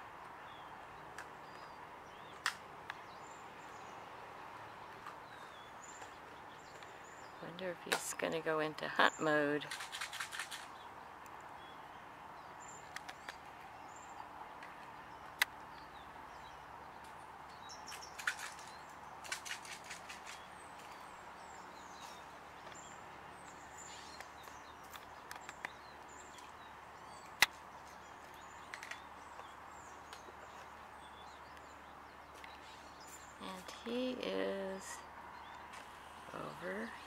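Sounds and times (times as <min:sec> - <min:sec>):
outdoor background noise: 0:00.0 - 0:37.0
small birds chirping: 0:00.2 - 0:37.0
sharp clicks: 0:09.6 - 0:11.4, 0:17.9 - 0:20.5.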